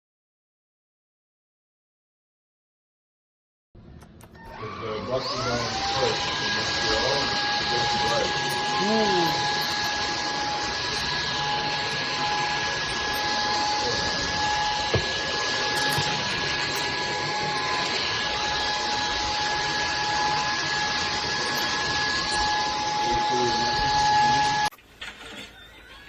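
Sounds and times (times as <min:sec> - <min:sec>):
click: 0:04.0 - 0:04.6
vacuum cleaner running: 0:04.0 - 0:26.0.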